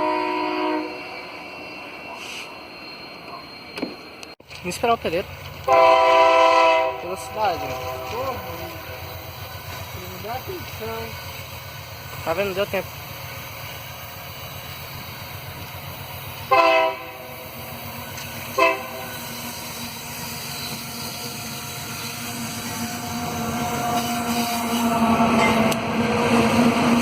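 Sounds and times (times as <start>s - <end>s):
train horn blasts: 0.0s - 1.1s, 5.6s - 9.0s, 16.5s - 17.3s, 18.6s - 19.2s
train running noise: 0.0s - 27.0s.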